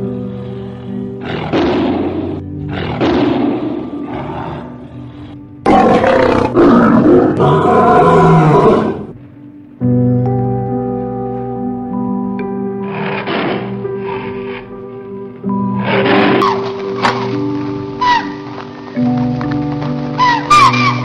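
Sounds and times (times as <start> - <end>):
background music sustained tones: 0.0 - 21.0
big cat growling and roaring: 0.3 - 9.2, 12.8 - 14.7, 15.8 - 16.6.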